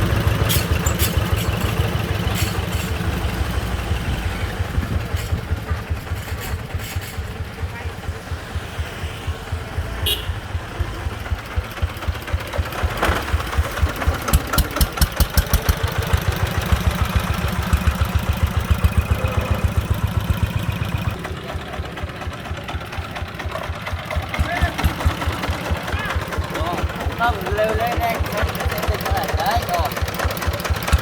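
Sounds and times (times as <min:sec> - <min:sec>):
diesel engine chugging: 0:00.0 - 0:31.0.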